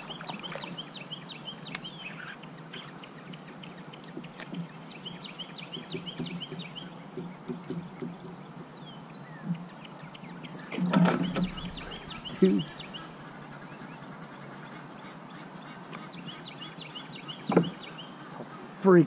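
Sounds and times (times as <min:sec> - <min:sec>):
bird high rising chirps: 0:00.0 - 0:07.0, 0:08.9 - 0:13.2
steady low hum: 0:00.0 - 0:19.0.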